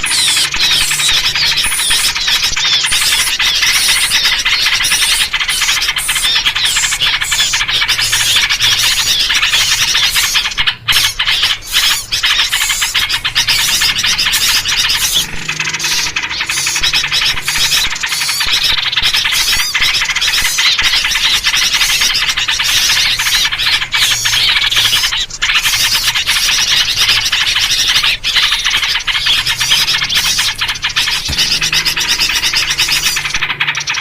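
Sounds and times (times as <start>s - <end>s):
bulbul calls: 0.0s - 34.0s
many small birds chirping: 0.0s - 34.0s.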